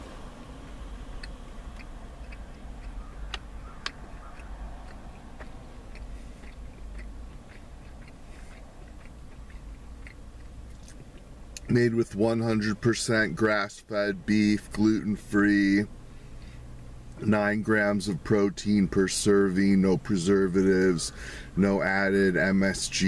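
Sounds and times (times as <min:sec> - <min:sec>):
person chewing jerky: 0:00.7 - 0:11.7
mouth clicks: 0:01.1 - 0:11.7.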